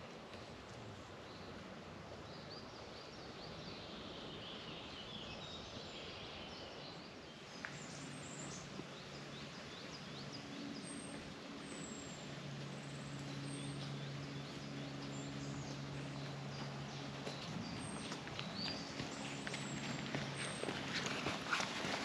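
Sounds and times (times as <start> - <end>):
outdoor background noise: 0.0 - 22.0
small birds chirping: 2.2 - 21.7
steady low hum: 7.4 - 22.0.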